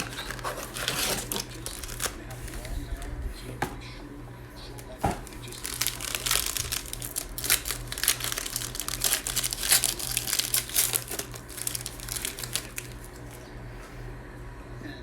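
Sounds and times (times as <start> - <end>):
plastic wrapping crinkling and tearing: 0.0 - 2.7, 5.0 - 13.4.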